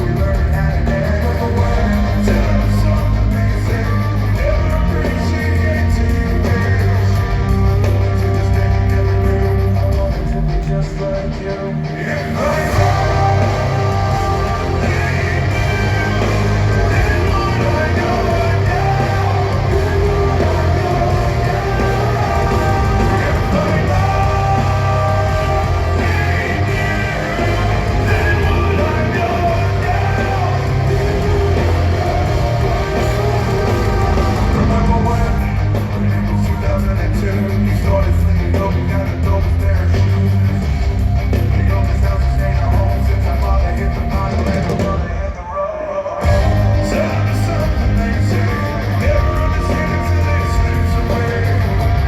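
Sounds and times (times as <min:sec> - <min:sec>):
person singing: 0:00.0 - 0:40.2
live rock band playing: 0:00.0 - 0:52.0.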